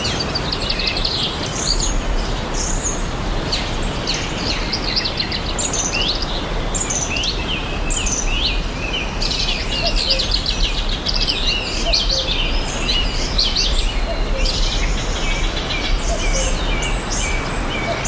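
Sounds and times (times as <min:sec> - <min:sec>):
birds chirping and trilling: 0:00.0 - 0:03.5.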